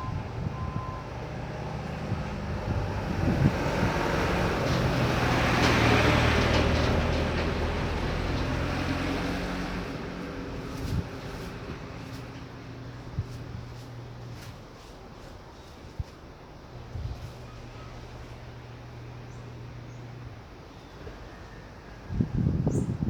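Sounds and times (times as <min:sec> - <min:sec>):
vehicle passing: 0:00.0 - 0:15.7.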